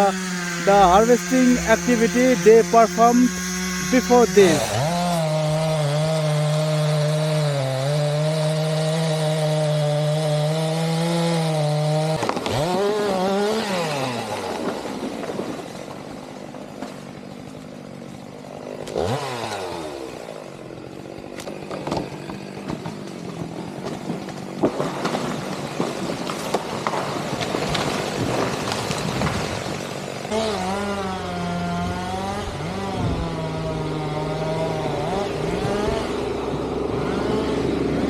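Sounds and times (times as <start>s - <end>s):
chainsaw revving and idling: 0.0s - 38.0s.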